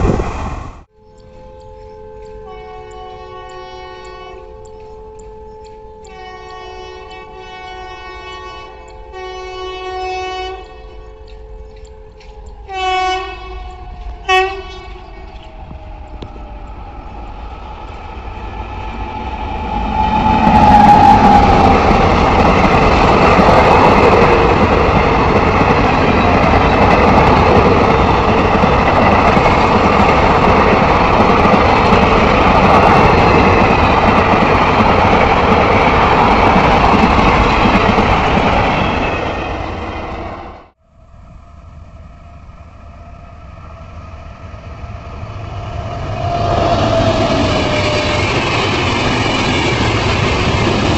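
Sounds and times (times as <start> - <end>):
train passing at speed: 0.0 - 50.9
locomotive horn blasts: 0.9 - 15.4.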